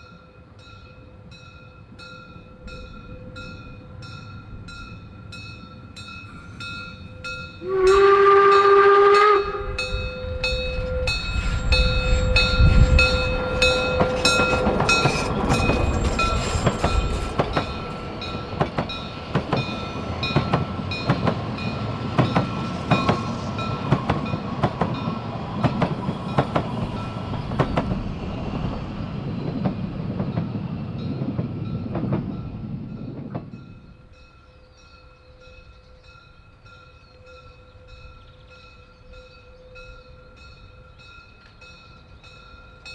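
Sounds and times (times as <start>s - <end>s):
steam train chuffing: 1.9s - 34.3s
rail clatter: 4.2s - 34.0s
steam locomotive whistle: 6.3s - 18.6s.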